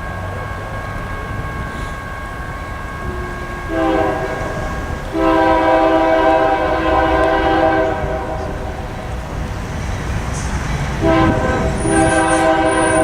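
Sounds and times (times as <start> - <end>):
train rumbling: 0.0 - 13.0
locomotive air horn blasts: 3.0 - 9.1, 11.0 - 13.0.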